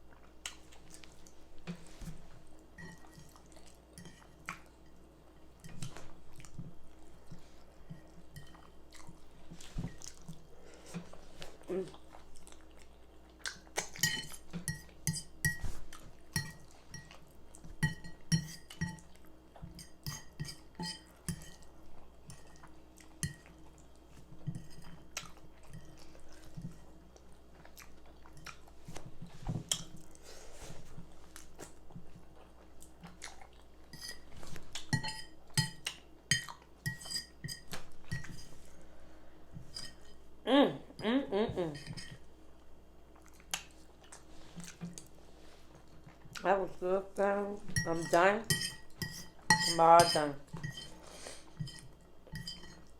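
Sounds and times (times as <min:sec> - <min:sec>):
chewing: 0:03.0 - 0:04.8, 0:05.6 - 0:14.4, 0:24.8 - 0:29.1, 0:31.2 - 0:34.9, 0:43.1 - 0:46.4
utensils clinking and scraping a plate: 0:33.9 - 0:38.6, 0:39.6 - 0:40.2, 0:41.8 - 0:42.3, 0:47.7 - 0:52.9.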